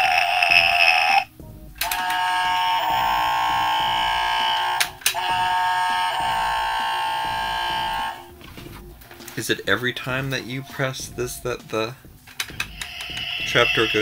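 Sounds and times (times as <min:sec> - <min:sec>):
toy electronic held tones: 0:00.0 - 0:08.2.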